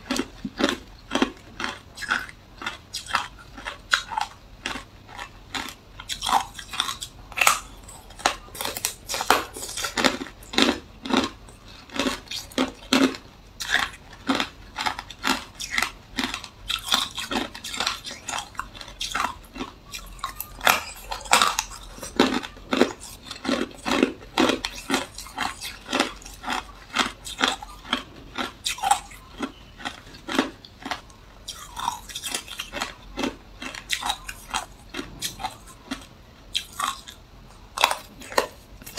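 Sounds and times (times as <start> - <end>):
ice crunching between teeth: 0.0 - 38.9.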